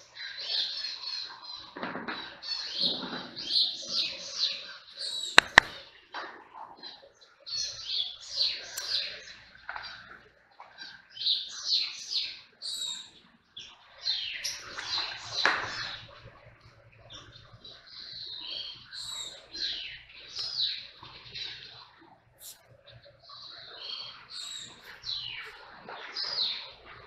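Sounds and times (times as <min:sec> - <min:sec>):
birds chirping: 0:02.5 - 0:06.1, 0:06.8 - 0:27.0
sharp clicks: 0:05.4 - 0:05.8.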